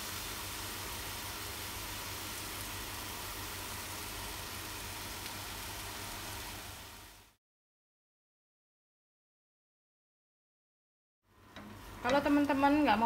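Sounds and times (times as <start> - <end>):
chicken sizzling in a pan: 0.0 - 7.4, 11.3 - 13.0.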